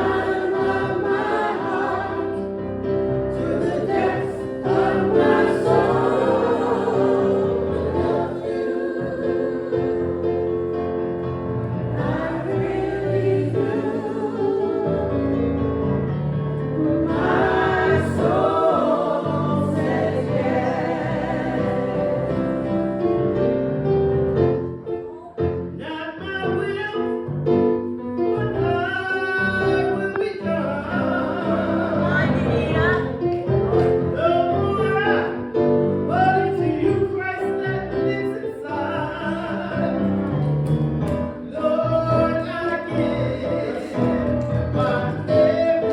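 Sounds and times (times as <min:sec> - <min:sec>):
congregation singing a hymn: 0:00.0 - 0:24.9, 0:28.5 - 0:45.9.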